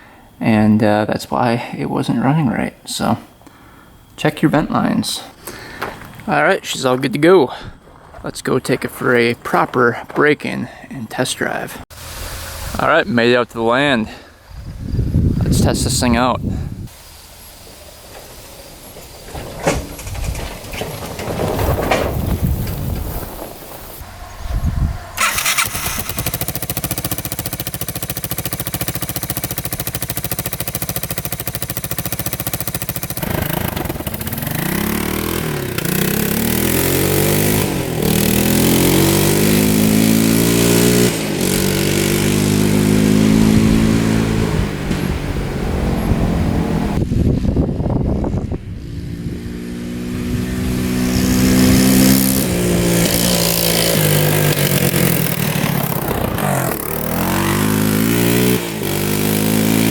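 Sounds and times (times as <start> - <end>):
three-wheeler engine revving: 25.0 - 59.9.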